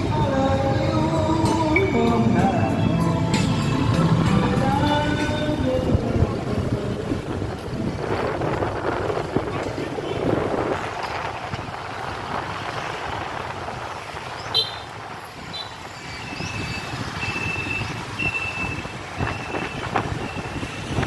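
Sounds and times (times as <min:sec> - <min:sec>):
motorbike and street traffic: 0:00.0 - 0:21.0
wind on microphone: 0:04.0 - 0:21.0.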